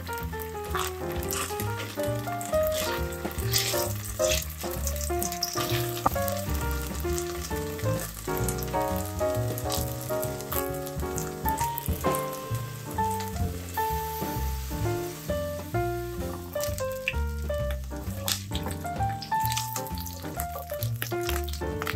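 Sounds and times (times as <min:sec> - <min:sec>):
background music: 0:00.0 - 0:21.9
food sizzling in oil: 0:00.6 - 0:21.9.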